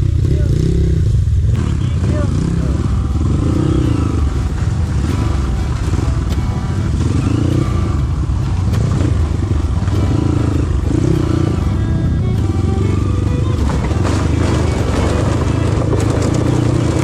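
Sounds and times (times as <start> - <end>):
motorcycle engine revving: 0.0 - 17.0
sharp knocks and clatter: 3.8 - 11.5, 13.4 - 17.0.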